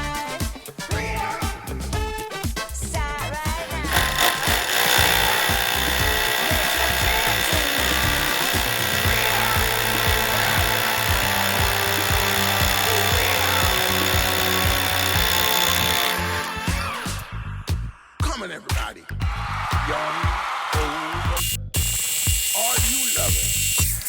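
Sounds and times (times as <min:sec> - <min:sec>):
background music with a beat: 0:00.0 - 0:24.0
hammer drill boring into concrete: 0:03.6 - 0:17.2, 0:21.4 - 0:24.0.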